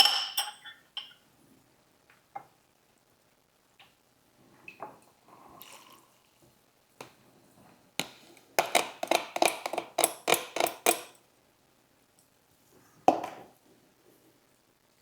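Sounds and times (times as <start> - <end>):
utensils tapping a bowl: 0.0 - 1.2, 8.0 - 11.2.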